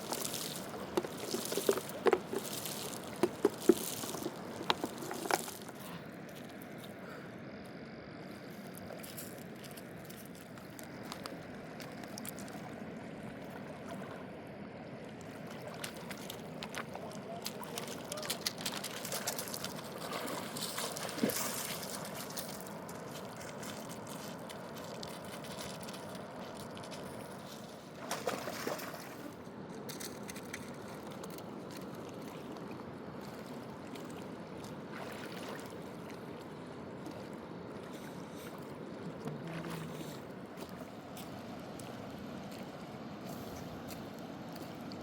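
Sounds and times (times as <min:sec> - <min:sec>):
water splashes: 0:00.0 - 0:06.0, 0:15.0 - 0:42.6
river water flowing: 0:00.0 - 0:07.4, 0:08.1 - 0:45.0.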